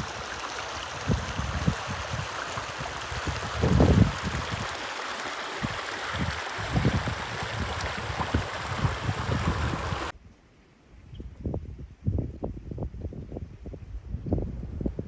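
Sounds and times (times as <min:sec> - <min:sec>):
rushing outdoor noise: 0:00.0 - 0:10.1.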